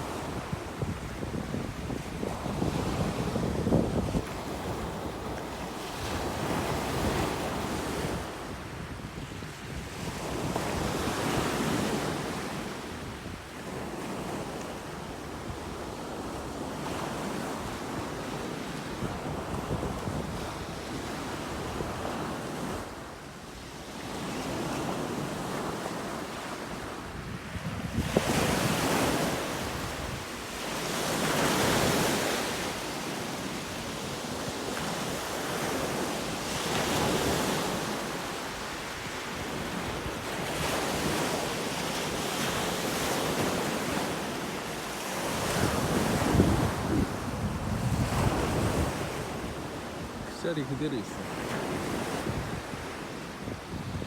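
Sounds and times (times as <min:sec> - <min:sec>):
ocean surf washing ashore: 0:00.0 - 0:54.0
wind buffeting microphone: 0:00.2 - 0:11.0, 0:27.2 - 0:30.3, 0:45.5 - 0:49.8, 0:51.8 - 0:54.0.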